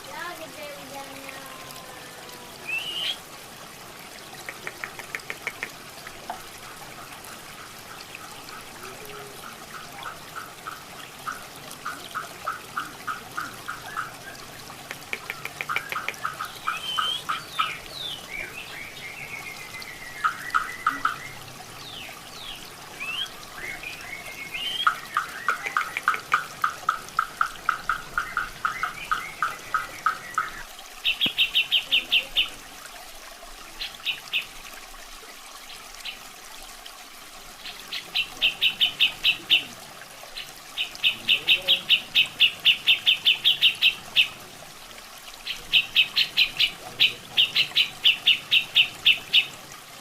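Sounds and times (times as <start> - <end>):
water trickling: 0.0 - 50.0
bird calling in rapid runs: 2.7 - 3.2, 15.0 - 18.2, 24.4 - 32.3.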